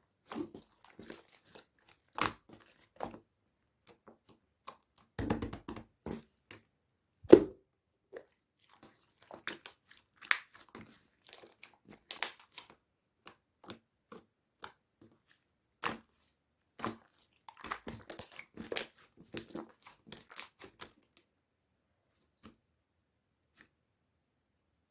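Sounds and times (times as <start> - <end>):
slime squished by hand: 8.6 - 12.7.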